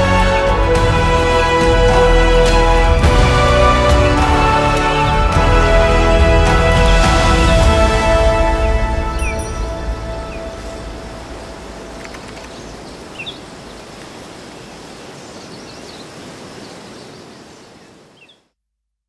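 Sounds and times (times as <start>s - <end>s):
background music: 0.0s - 13.3s
steady rushing noise: 0.0s - 15.4s
bird chirps: 9.1s - 10.5s, 11.8s - 13.9s, 14.5s - 18.5s.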